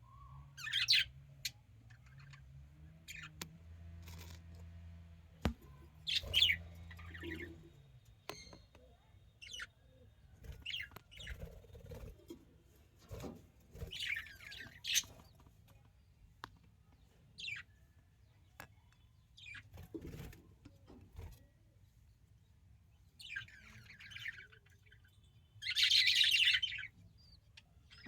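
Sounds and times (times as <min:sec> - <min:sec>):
budgerigars chirping: 0:00.6 - 0:02.5, 0:03.1 - 0:03.4, 0:05.7 - 0:07.7, 0:13.9 - 0:15.2, 0:23.2 - 0:27.3.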